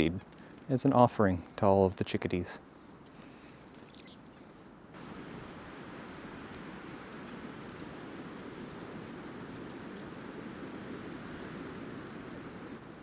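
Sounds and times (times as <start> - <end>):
songbird high call notes: 0.6 - 2.5.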